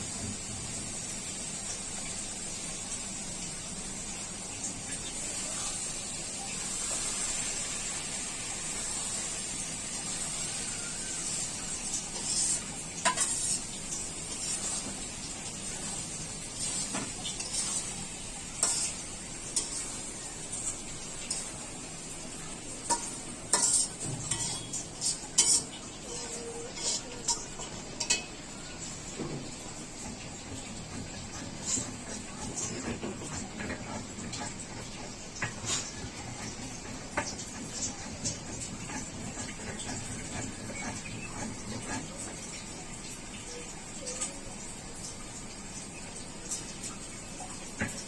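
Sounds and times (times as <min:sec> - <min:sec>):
food sizzling in hot oil: 0:00.0 - 0:48.0
spoon scraping and clinking on pan: 0:11.9 - 0:15.1, 0:16.5 - 0:18.0, 0:18.6 - 0:21.6, 0:22.8 - 0:28.3.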